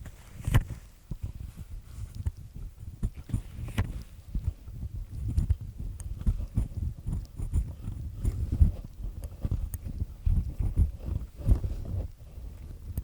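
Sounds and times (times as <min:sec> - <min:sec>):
ear pick scraping inside ear: 0:05.1 - 0:12.4.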